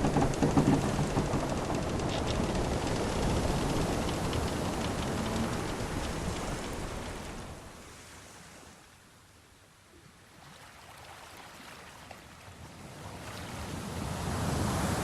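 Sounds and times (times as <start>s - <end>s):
sea waves washing: 0.0s - 8.6s.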